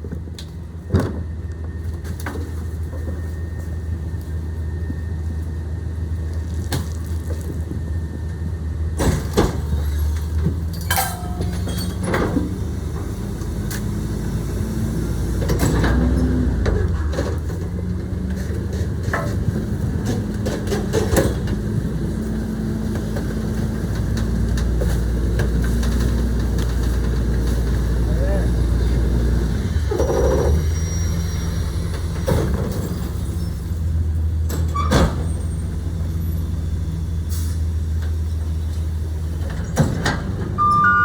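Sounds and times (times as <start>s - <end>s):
garbage truck engine running: 7.6s - 41.0s
metallic clanks and knocks: 10.7s - 12.5s.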